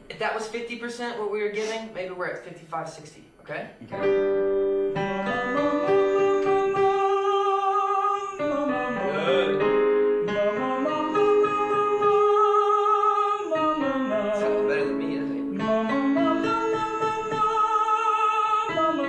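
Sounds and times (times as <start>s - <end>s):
instrumental accompaniment: 3.8s - 19.0s
man singing high notes with vibrato: 5.2s - 19.0s.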